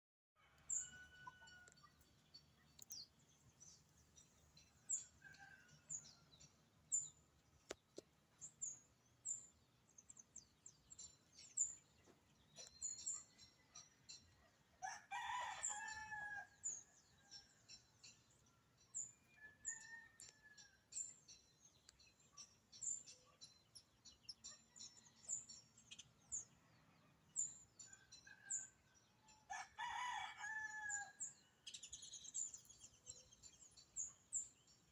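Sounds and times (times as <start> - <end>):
small birds chirping: 0.7 - 14.6, 15.6 - 34.9
rooster crowing: 14.8 - 16.5, 29.5 - 31.2.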